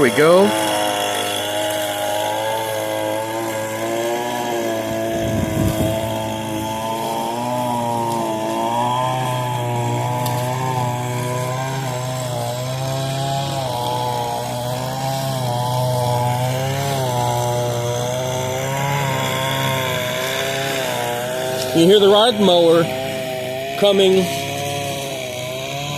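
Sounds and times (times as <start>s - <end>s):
riding mower engine running: 0.0s - 25.9s
string trimmer engine wavering: 0.0s - 25.9s.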